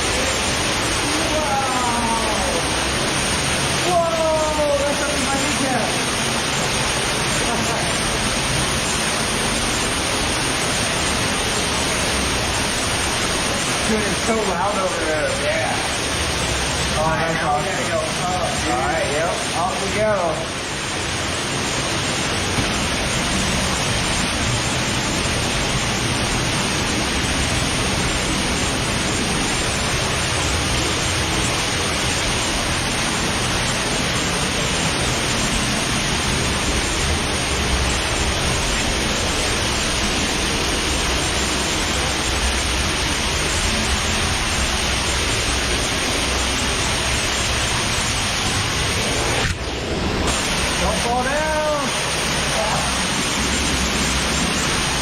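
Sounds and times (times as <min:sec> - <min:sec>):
underground waterfall rushing: 0:00.0 - 0:55.0.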